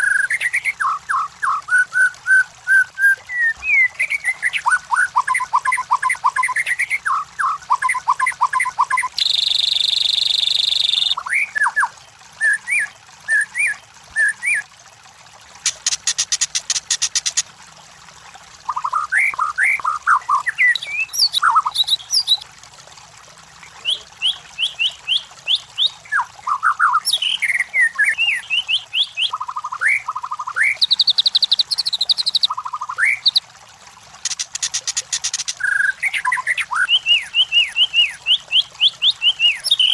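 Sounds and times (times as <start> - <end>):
bird singing whistled phrases: 0.0 - 14.6, 18.7 - 22.4, 23.8 - 33.4, 35.6 - 39.9
harsh buzzy bird rattle: 15.6 - 17.4, 34.2 - 35.6.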